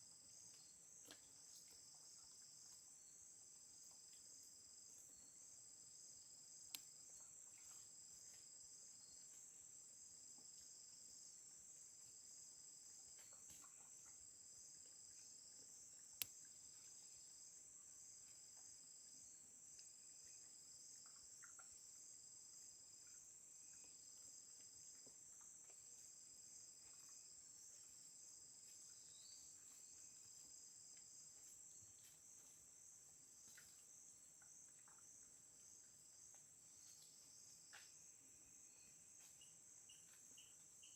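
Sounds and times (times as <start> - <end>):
crickets and insects trilling: 29.0 - 40.9.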